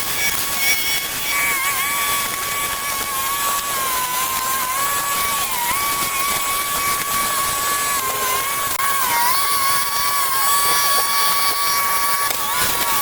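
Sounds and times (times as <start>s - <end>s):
power tool motor whine: 0.0s - 13.0s
steady hiss: 0.0s - 13.0s.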